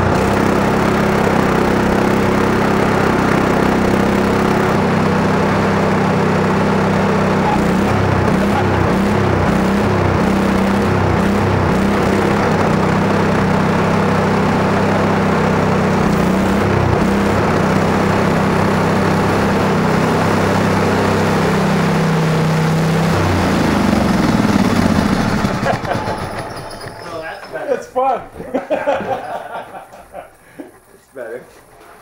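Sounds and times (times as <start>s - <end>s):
lawn tractor engine running: 0.0s - 32.0s.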